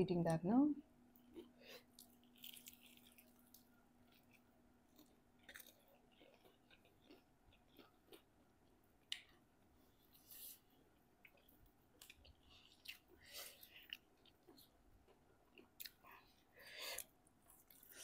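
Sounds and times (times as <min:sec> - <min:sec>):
faint chewing with crunches: 0:01.1 - 0:18.0.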